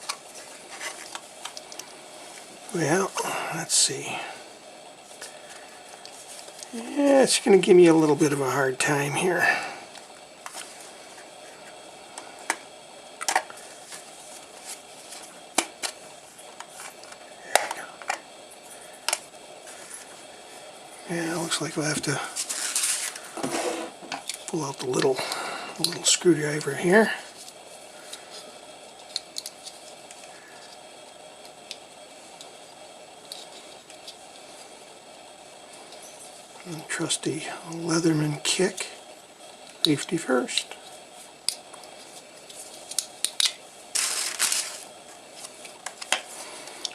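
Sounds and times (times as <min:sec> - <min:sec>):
faint hum: 0:00.0 - 0:46.9
small tools clicking and tapping: 0:42.9 - 0:43.6.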